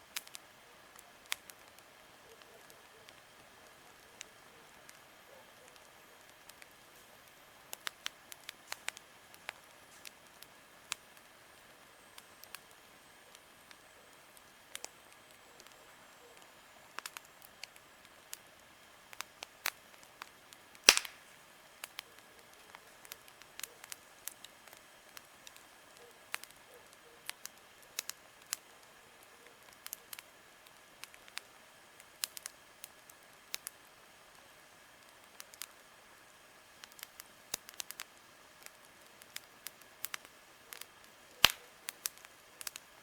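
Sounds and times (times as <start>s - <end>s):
campfire crackling and snapping: 0.0s - 43.0s
loud fire pop: 20.9s - 21.2s.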